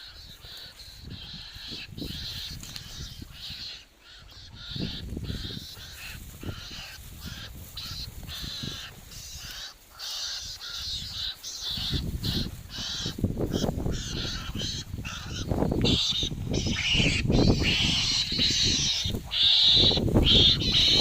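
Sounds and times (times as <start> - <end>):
high harsh animal calls: 0.0 - 21.0.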